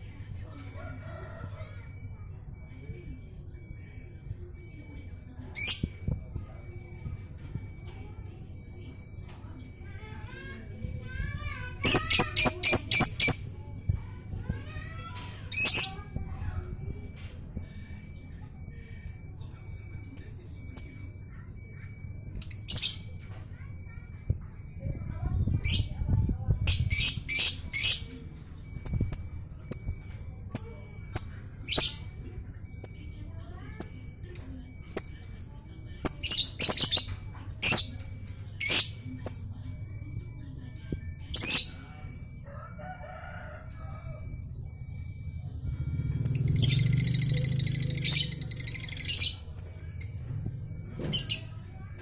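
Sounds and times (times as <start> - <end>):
bird chirping: 33.8 - 39.5.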